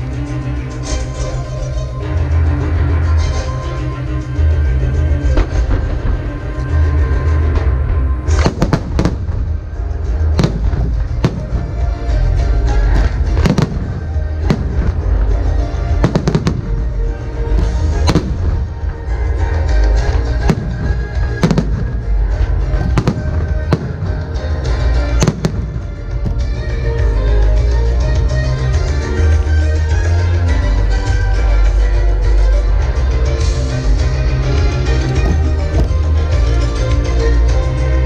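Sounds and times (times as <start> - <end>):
loud music: 0.0 - 38.0
fireworks bursting: 5.4 - 27.2.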